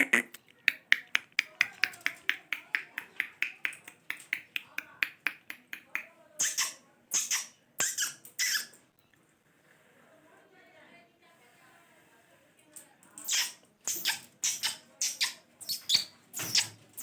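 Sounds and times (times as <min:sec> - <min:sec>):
parrot clicking: 0:00.4 - 0:06.7.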